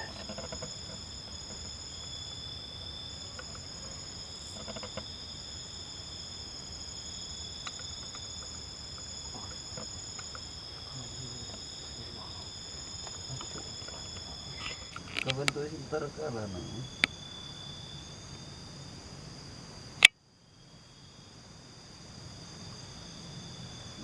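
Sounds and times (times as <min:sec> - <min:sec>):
faint ticks and knocks: 0:00.0 - 0:01.8, 0:03.3 - 0:05.1
insects trilling: 0:00.0 - 0:24.0.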